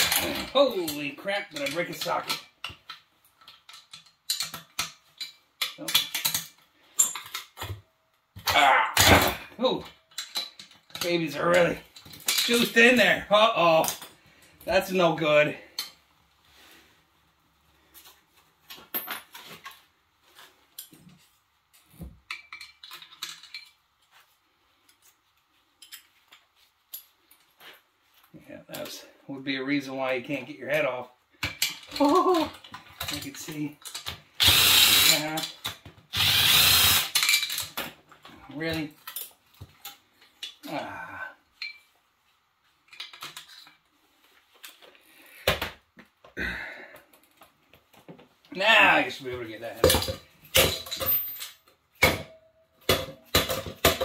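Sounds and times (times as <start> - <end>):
metal tools clinking: 0.0 - 7.7, 9.2 - 13.0, 22.3 - 23.8, 25.8 - 27.5, 36.8 - 40.7, 41.5 - 42.0, 49.8 - 51.8.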